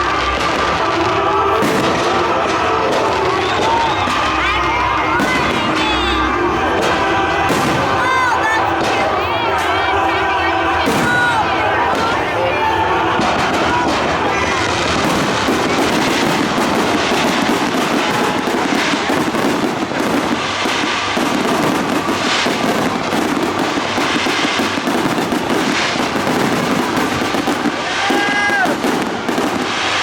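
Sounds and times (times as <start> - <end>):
fireworks bangs and crackling: 0.0 - 30.0
heavy firework bursts: 0.0 - 30.0.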